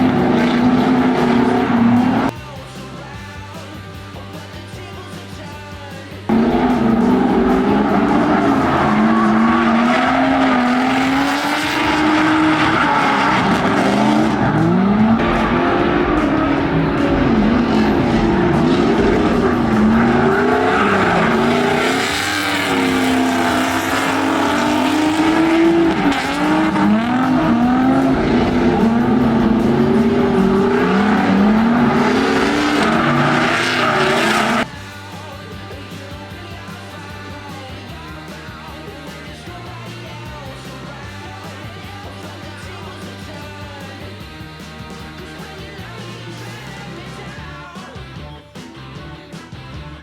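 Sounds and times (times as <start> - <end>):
car engine revving: 0.0 - 2.4, 6.3 - 35.1
tyres screeching: 6.3 - 34.7.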